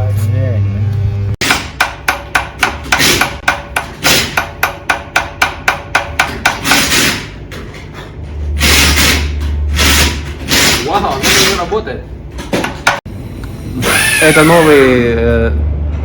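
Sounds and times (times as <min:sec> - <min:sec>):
hammer tapping metal: 0:01.4 - 0:07.0.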